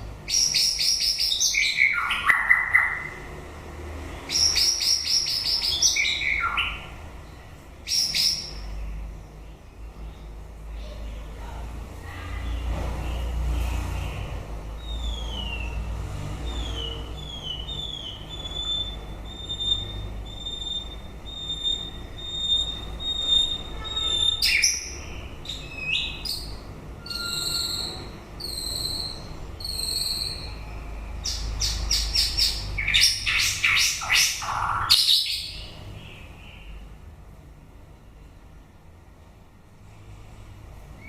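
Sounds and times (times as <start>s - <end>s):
bird singing whistled notes: 4.3s - 6.9s, 14.8s - 15.8s, 16.4s - 35.8s.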